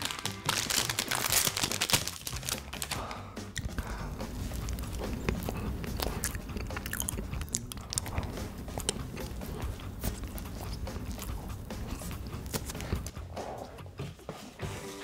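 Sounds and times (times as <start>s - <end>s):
biting into snack: 1.0s - 13.2s
soft chewing with mouth clicks: 3.5s - 13.8s.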